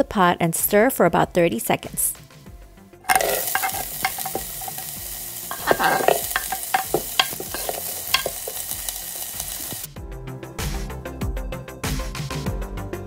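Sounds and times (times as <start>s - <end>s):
cutting board knocking on pot: 3.1s - 4.9s, 5.5s - 8.6s
vegetables sizzling in hot oil: 3.1s - 10.0s.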